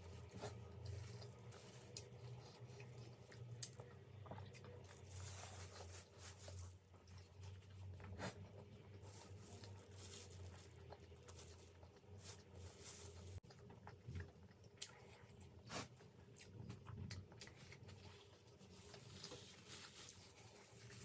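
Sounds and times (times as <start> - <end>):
person chewing food: 0.0 - 6.0, 6.6 - 19.6.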